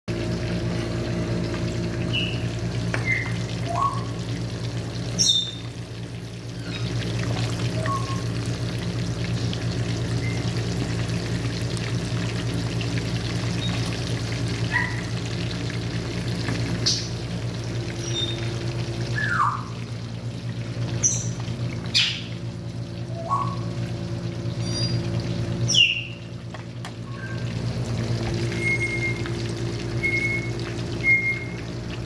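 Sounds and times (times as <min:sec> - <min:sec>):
parrot calls: 0:14.7 - 0:15.1, 0:19.2 - 0:19.8.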